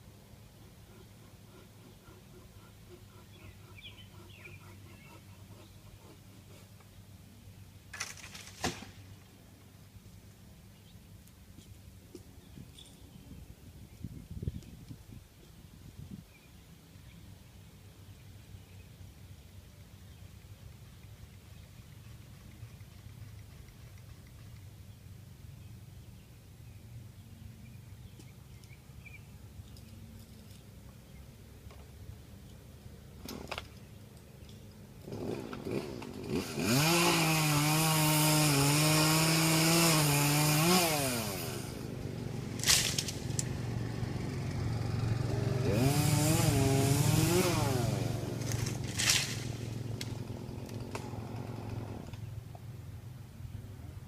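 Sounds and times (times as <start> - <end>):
chainsaw revving: 35.0 - 52.4.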